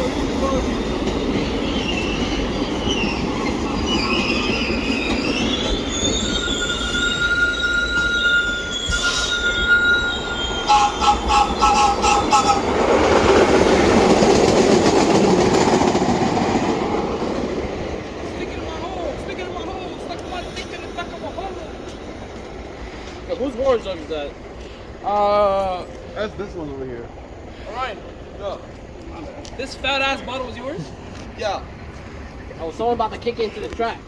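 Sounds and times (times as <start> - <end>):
subway wheels squealing: 0.0 - 26.4
subway train rumbling past: 0.0 - 34.0.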